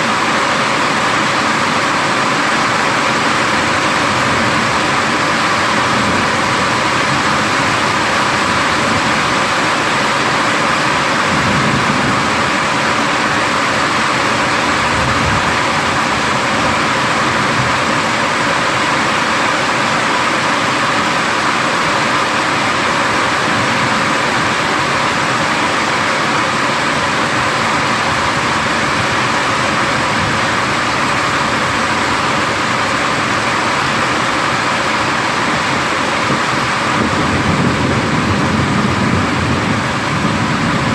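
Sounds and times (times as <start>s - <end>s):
heavy rain pouring: 0.0s - 40.9s
faint low thunder rumbles: 36.4s - 40.9s.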